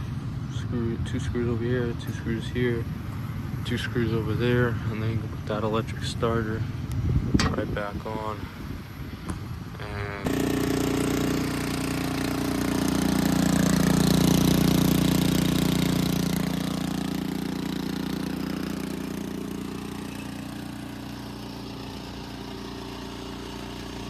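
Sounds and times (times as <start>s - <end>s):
snowblower engine running: 9.7s - 24.0s.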